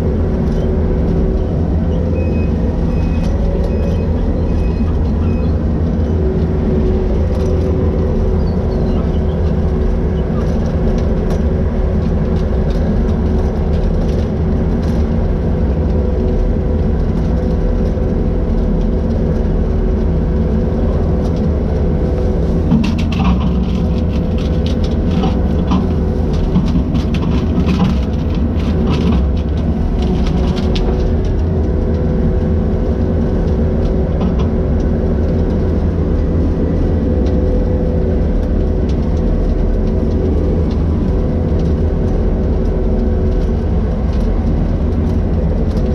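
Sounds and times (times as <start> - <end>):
skid steer engine running: 0.0 - 45.9
crackling and knocking: 22.5 - 32.0.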